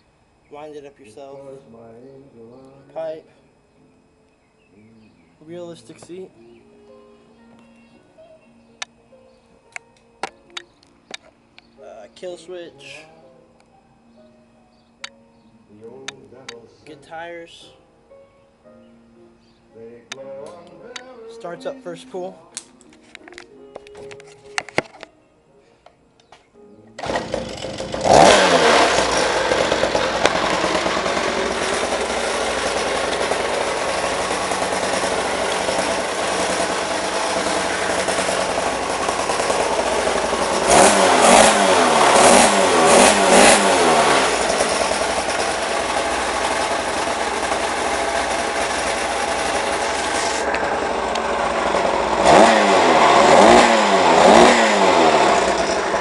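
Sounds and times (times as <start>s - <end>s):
small engine revving: 27.0s - 56.0s
two-stroke engine starting: 27.0s - 56.0s.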